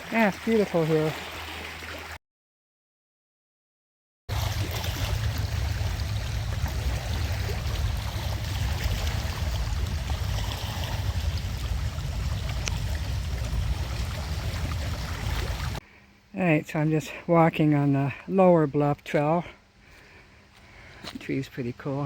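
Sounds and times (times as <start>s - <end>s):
rushing noise with low rumble: 4.3s - 15.8s.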